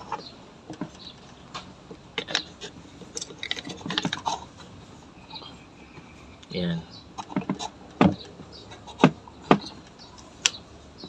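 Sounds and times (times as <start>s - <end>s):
small metal parts clicking: 2.2s - 4.3s.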